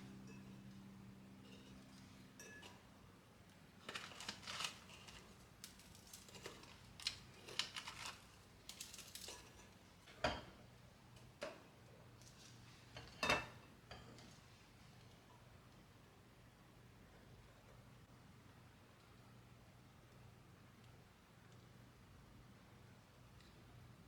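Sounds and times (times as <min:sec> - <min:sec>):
dishes and utensils clinking: 0:01.4 - 0:02.9, 0:13.0 - 0:14.3.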